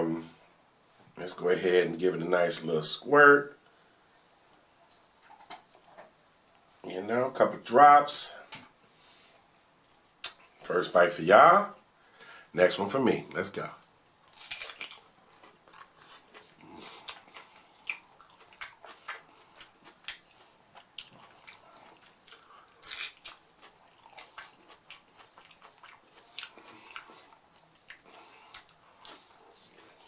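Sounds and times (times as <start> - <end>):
soft chewing: 3.7 - 6.9, 9.3 - 10.6, 13.8 - 30.0
crunchy taco shell crunching: 14.3 - 29.3.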